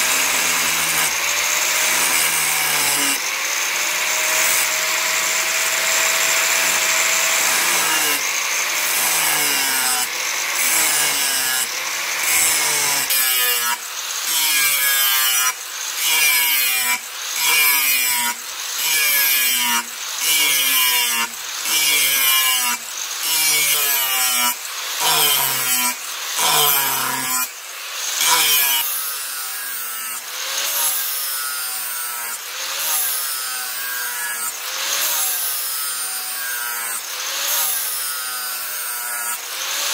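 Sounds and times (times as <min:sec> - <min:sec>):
squealing chainsaw bar strokes: 0:00.0 - 0:29.8.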